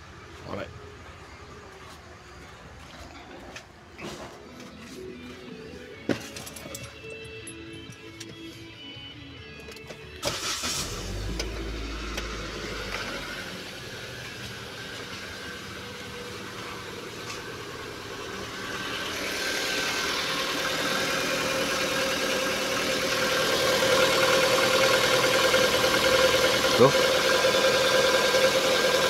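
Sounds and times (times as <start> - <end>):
car engine idling roughly: 10.4 - 29.0.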